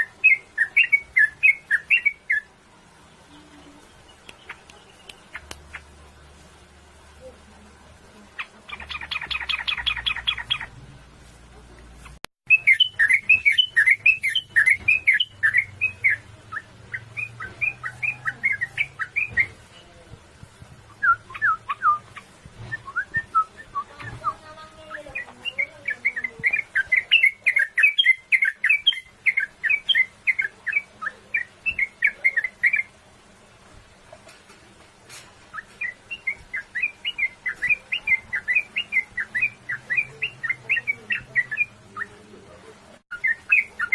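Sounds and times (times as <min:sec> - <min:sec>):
bird singing rolling song: 0:00.0 - 0:10.8, 0:12.0 - 0:20.1, 0:20.8 - 0:33.3, 0:34.3 - 0:43.9.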